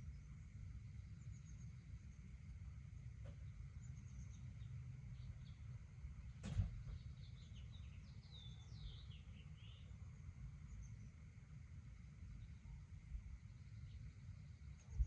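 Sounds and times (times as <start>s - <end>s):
steady low rumble: 0.0s - 15.0s
sharp knock: 6.4s - 6.8s.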